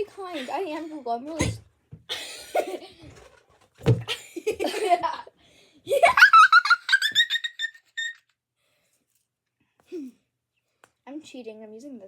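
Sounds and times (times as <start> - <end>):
girls laughing and giggling: 2.1 - 3.2, 4.0 - 8.1.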